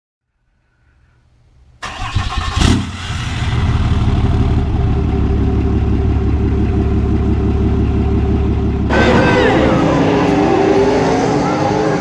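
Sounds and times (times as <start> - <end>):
truck engine running loud: 3.0 - 12.0.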